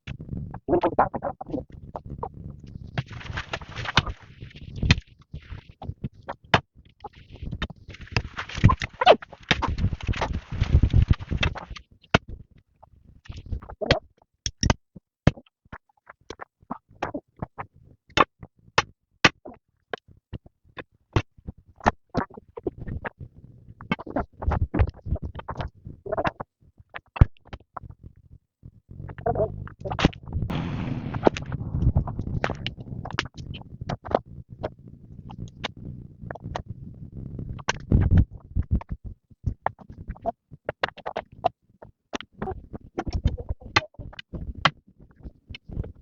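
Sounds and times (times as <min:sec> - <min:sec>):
rustling noise: 0:02.7 - 0:05.8, 0:07.2 - 0:11.8, 0:30.2 - 0:36.7.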